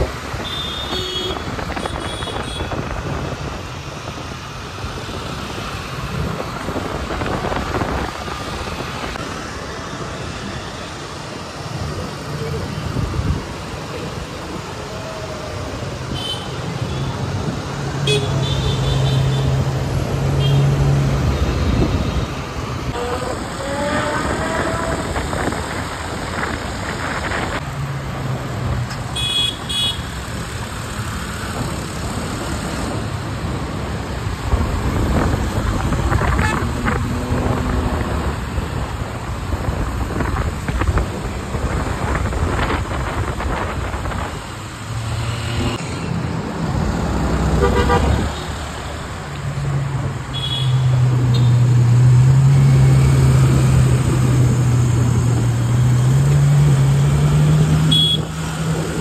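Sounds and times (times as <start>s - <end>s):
car horn toots: 47.6s - 48.2s, 57.9s - 58.3s.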